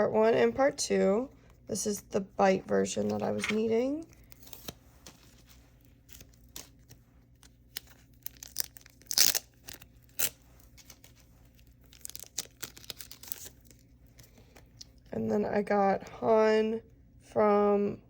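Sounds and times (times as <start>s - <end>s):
packaging crinkling and tearing: 3.0s - 15.0s.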